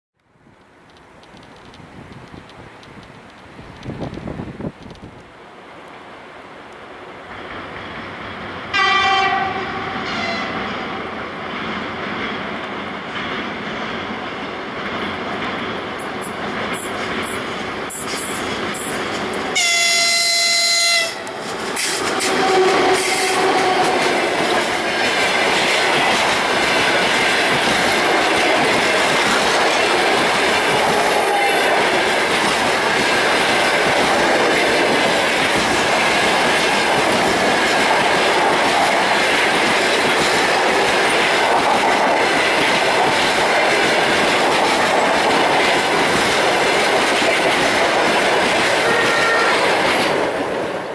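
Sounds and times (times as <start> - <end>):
train wheels clacking on rails: 7.3 - 50.8
locomotive horn blast: 8.7 - 10.8, 19.6 - 24.1, 30.6 - 31.8, 48.8 - 49.9.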